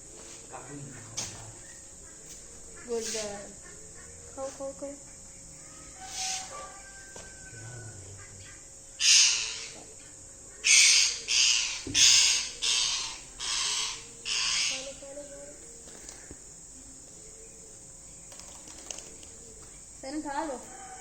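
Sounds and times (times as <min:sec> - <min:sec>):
parakeets squawking: 0:09.0 - 0:09.8, 0:10.6 - 0:20.5.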